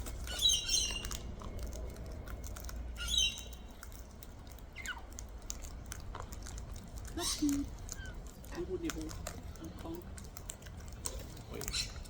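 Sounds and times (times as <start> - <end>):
beaks clicking on food: 0.0 - 12.0
cockatoo calls: 0.2 - 1.2, 3.0 - 3.7, 4.8 - 5.1, 11.6 - 12.0.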